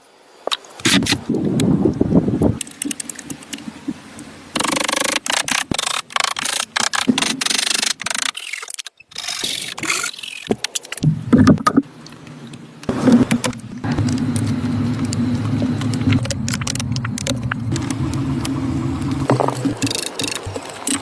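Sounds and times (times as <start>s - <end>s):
wood scraping and knocking: 12.9s - 18.4s, 19.0s - 21.0s.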